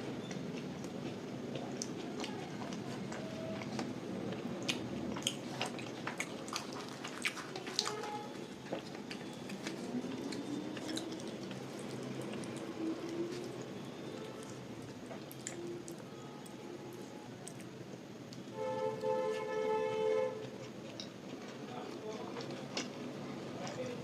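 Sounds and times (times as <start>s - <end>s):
wet chewing mouth sounds: 0.0s - 16.0s.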